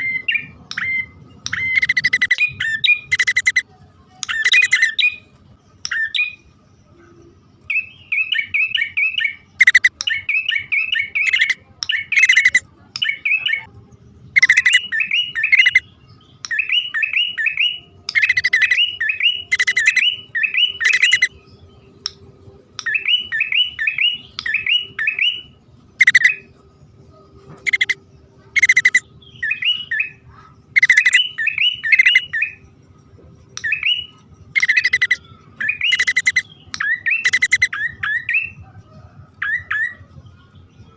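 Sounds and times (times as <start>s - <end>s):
harsh scratchy bird calls: 0.0s - 3.6s, 4.2s - 5.3s, 7.7s - 13.7s, 14.4s - 21.4s, 22.8s - 26.6s, 27.5s - 32.6s, 33.6s - 38.6s
birds chirping: 0.0s - 40.9s.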